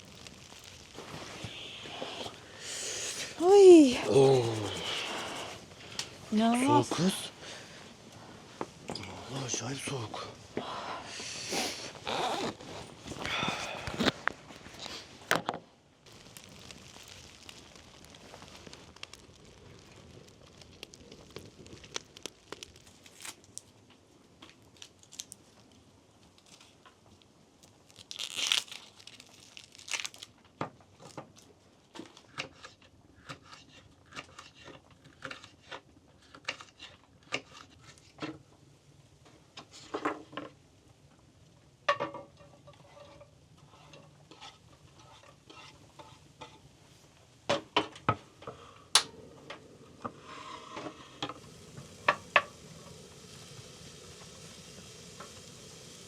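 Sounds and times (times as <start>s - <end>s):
packaging rustling: 16.1s - 23.7s.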